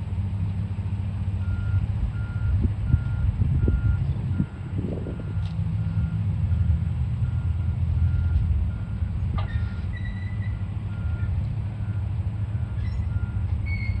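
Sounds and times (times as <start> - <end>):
diesel engine running: 0.0 - 14.0
high squeal: 9.4 - 10.6, 12.8 - 14.0.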